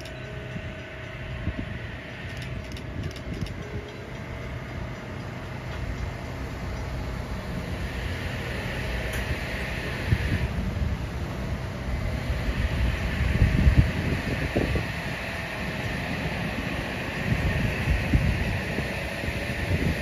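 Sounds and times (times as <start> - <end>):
train wheels rumbling on rails: 0.0 - 20.0
hiss: 7.6 - 10.7, 11.8 - 20.0.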